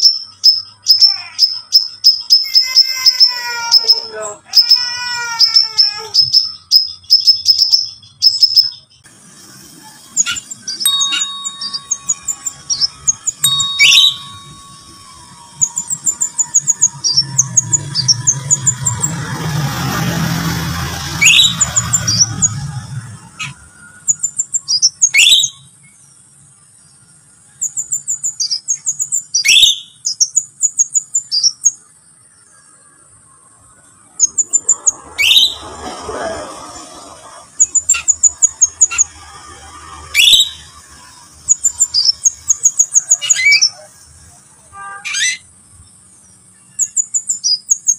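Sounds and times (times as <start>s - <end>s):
sharp downward bird calls: 0.0s - 9.1s, 10.2s - 25.7s, 27.6s - 31.8s, 34.1s - 43.9s, 44.6s - 45.5s
bird chirping: 0.0s - 47.9s.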